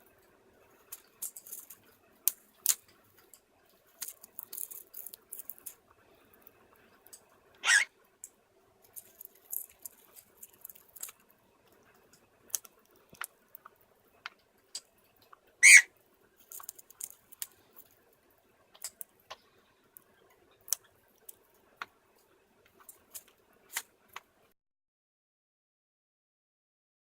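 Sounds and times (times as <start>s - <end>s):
bird beak clicking on grains: 0.8s - 7.3s, 8.2s - 15.8s, 16.4s - 18.1s, 18.7s - 21.9s
bird squeak: 7.6s - 7.9s, 15.6s - 15.9s.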